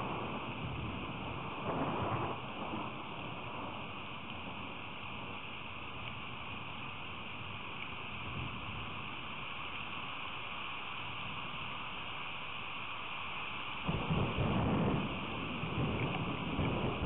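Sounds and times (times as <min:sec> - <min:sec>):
low rumble of thunder: 0:00.0 - 0:09.4, 0:13.9 - 0:17.0
rain hissing: 0:00.0 - 0:17.0.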